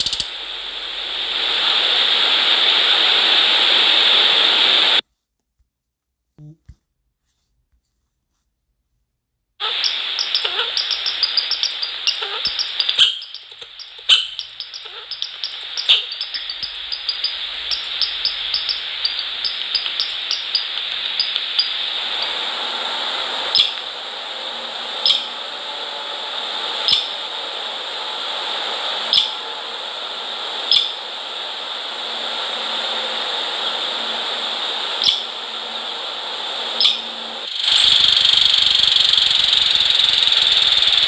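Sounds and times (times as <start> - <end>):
steady hiss: 0.0 - 5.0, 9.6 - 41.0
small birds chirping: 9.6 - 22.4, 36.8 - 41.0
pecking clicks: 9.8 - 22.3.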